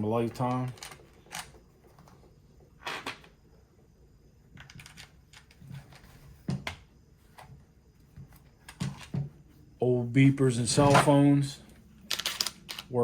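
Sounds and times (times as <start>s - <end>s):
plastic parts clicking: 12.0s - 13.0s.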